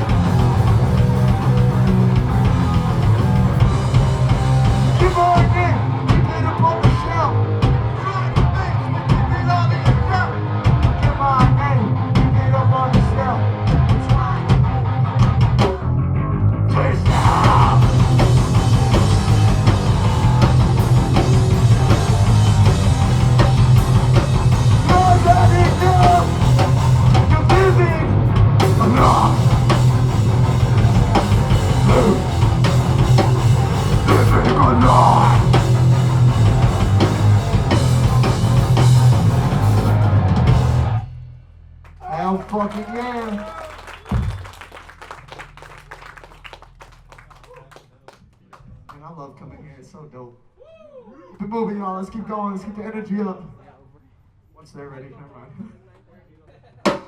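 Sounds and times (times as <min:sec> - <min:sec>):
drum kit: 0:00.0 - 0:16.0, 0:17.0 - 0:42.2, 0:43.8 - 0:46.5
distorted electric guitars: 0:00.0 - 0:41.7
bass guitar: 0:00.0 - 0:47.8.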